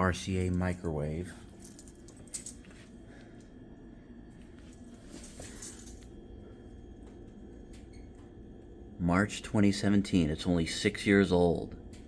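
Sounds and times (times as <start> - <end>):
low steady hum: 0.0 - 12.0
soft rustle: 4.4 - 6.0.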